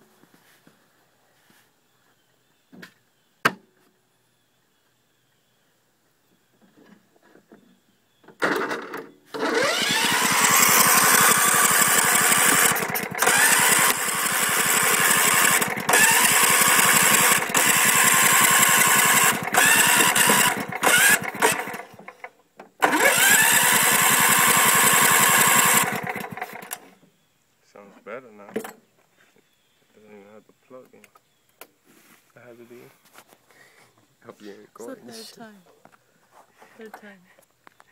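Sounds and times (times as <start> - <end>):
electric starter cranking engine: 8.4 - 26.9.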